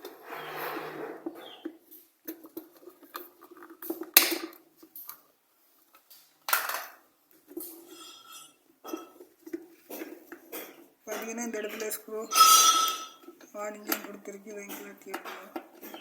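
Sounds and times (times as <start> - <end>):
clicks and knocks on plastic: 13.2 - 16.0.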